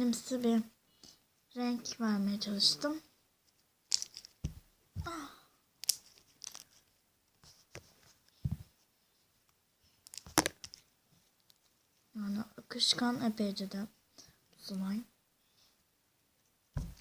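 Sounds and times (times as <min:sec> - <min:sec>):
soft thumps: 0:08.4 - 0:08.8, 0:16.8 - 0:17.0.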